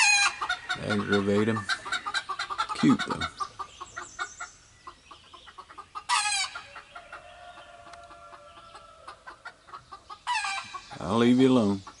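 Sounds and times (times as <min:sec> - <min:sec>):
chicken squawk: 0:00.0 - 0:11.1
chickens clucking: 0:00.0 - 0:12.0
rooster crowing: 0:06.2 - 0:09.2.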